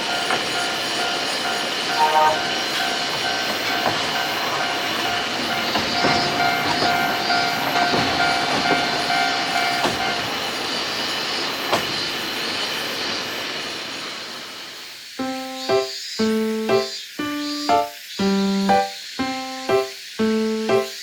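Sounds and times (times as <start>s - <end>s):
steady ringing tone: 0.0s - 9.7s
wheel clatter on rails: 0.0s - 12.8s
music: 0.1s - 5.7s, 15.2s - 21.0s.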